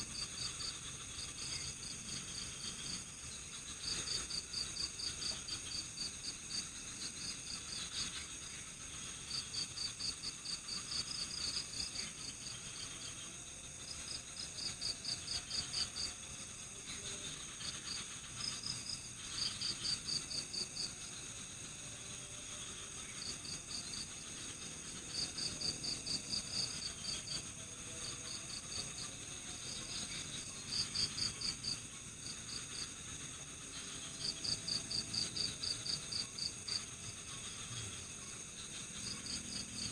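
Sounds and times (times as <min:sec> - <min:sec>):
crickets chirping: 0:00.0 - 0:39.9
high-pitched insect drone: 0:00.0 - 0:39.9.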